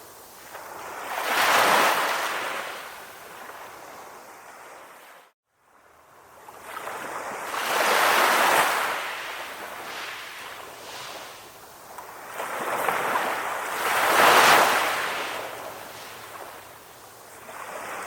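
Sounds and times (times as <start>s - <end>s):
ocean waves washing ashore: 0.0s - 18.0s.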